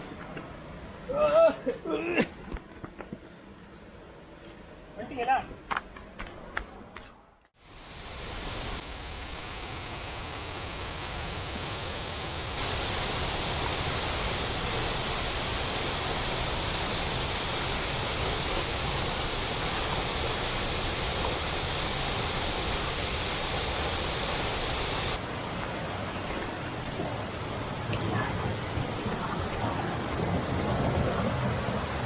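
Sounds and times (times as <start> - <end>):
waterfall rushing: 7.6 - 27.9.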